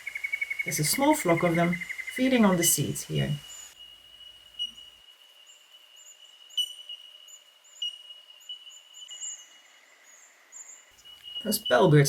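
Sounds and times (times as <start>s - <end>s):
birds giving ringing tink calls: 0.0s - 12.0s
very high bird chirps: 6.0s - 12.0s.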